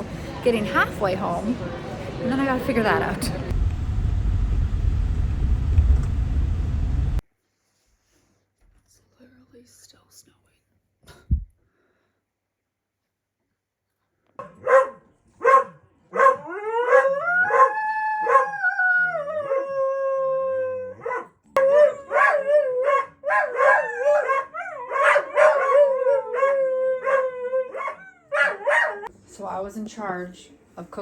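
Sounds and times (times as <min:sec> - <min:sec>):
dog barking: 0:14.4 - 0:17.7, 0:21.0 - 0:26.0, 0:27.0 - 0:29.1
dog howling: 0:16.2 - 0:29.1.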